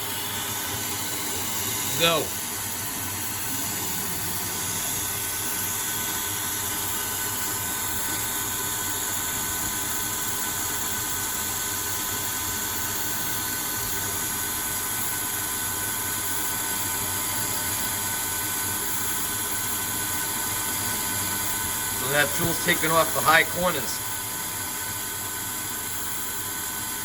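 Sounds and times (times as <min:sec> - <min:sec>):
lathe cutting steel: 0:00.0 - 0:10.6, 0:20.4 - 0:25.0
coolant mist hissing: 0:00.0 - 0:27.0.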